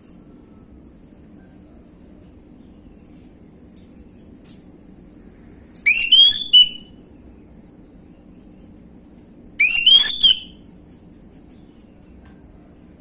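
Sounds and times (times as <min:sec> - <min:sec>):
thrush singing whistled notes: 0:05.8 - 0:06.9, 0:09.6 - 0:10.6.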